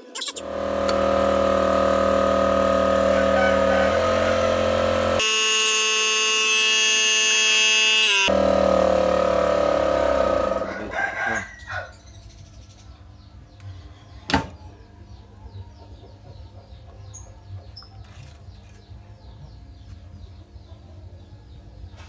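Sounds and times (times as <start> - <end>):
faint birds chirping: 11.2 - 22.0.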